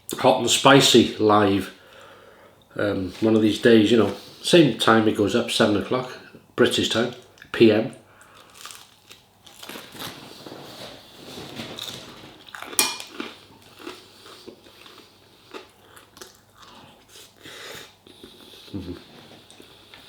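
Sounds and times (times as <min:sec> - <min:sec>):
person chewing: 0:08.2 - 0:10.2, 0:11.7 - 0:20.0
cutlery clinking on a plate: 0:12.8 - 0:13.2.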